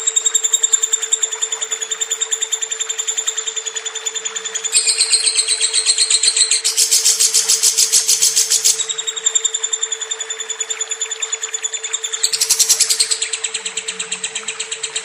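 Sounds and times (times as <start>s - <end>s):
lovebird chattering trill: 4.7s - 9.6s, 10.6s - 15.0s.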